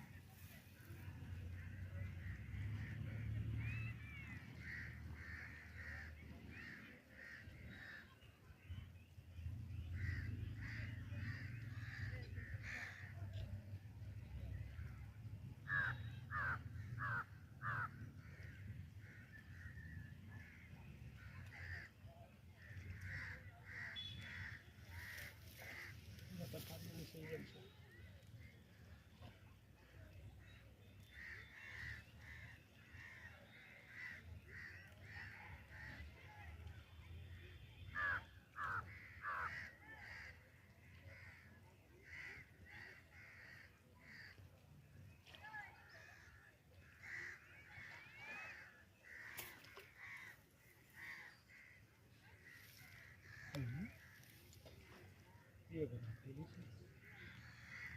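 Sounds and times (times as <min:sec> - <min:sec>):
crow cawing: 0:15.7 - 0:17.9, 0:37.9 - 0:40.2.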